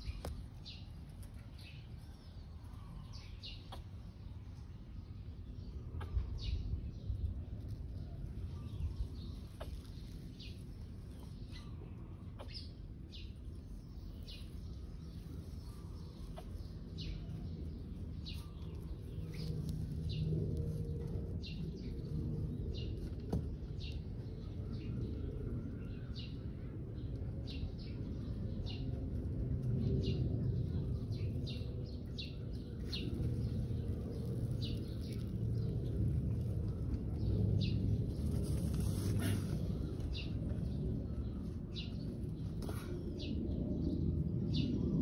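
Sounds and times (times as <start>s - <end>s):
steady low rumble: 0.0s - 45.0s
bird chirping: 8.0s - 29.1s.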